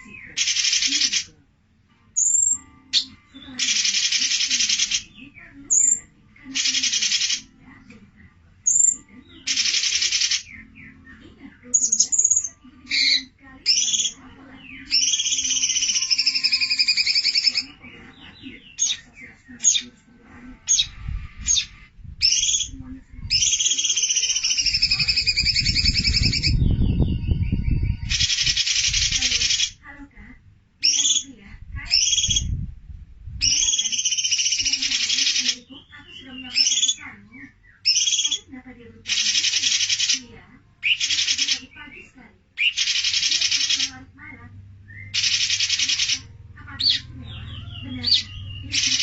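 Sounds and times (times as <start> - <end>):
bird chattering trills: 0.0 - 1.3, 2.2 - 7.5, 8.6 - 20.0, 20.6 - 29.8, 30.8 - 32.6, 33.4 - 44.1, 44.9 - 49.0
buzzy bird rattle: 0.4 - 1.3, 3.6 - 5.1, 6.6 - 7.4, 9.5 - 10.5, 39.1 - 40.3, 42.6 - 43.9, 45.2 - 46.3.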